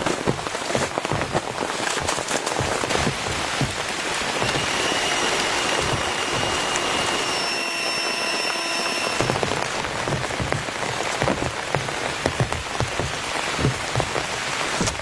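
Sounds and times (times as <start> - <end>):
heavy rain falling: 0.0 - 15.0
faint high steady tone: 4.3 - 9.4.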